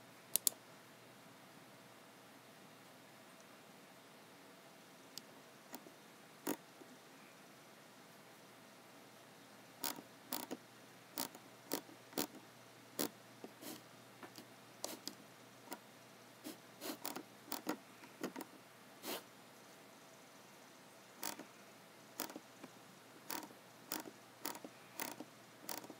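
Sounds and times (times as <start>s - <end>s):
faint room hum: 0.0s - 25.9s
keyboard and mouse clicking: 0.3s - 0.6s, 9.8s - 10.6s, 17.0s - 18.5s, 21.2s - 21.4s, 22.2s - 22.4s, 23.2s - 25.9s.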